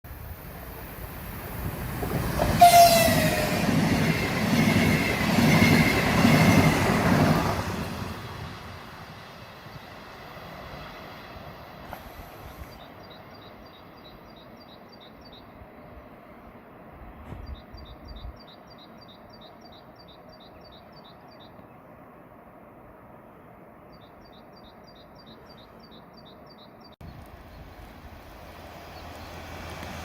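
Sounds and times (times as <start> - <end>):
train passing at speed: 0.1 - 30.0
train horn: 2.4 - 3.8.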